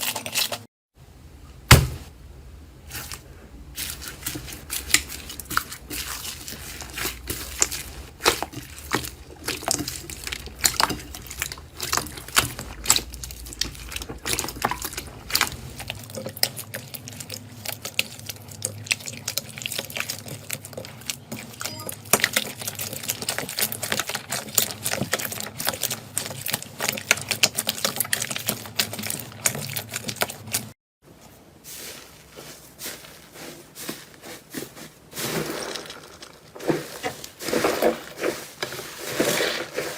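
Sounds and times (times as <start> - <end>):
slime squelching and popping: 3.8 - 30.6.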